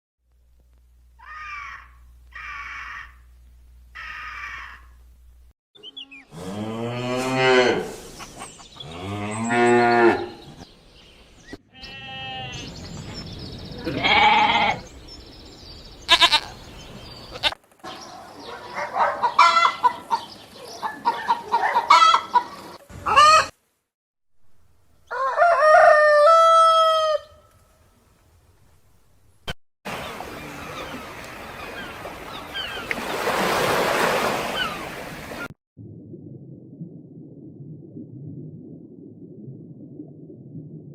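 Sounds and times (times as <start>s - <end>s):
farm animal calls: 16.1s - 16.6s, 17.3s - 23.5s.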